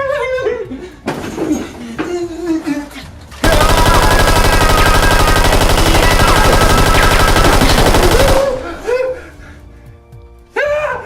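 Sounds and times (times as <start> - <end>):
machine gun rapid fire: 3.4 - 9.2.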